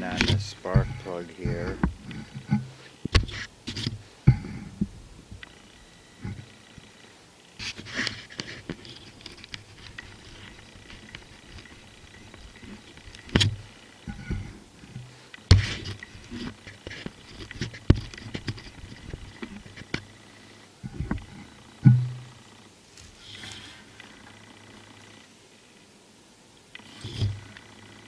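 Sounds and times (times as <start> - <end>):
sharp knocks: 0.0 - 3.4, 15.5 - 15.8, 21.8 - 22.3.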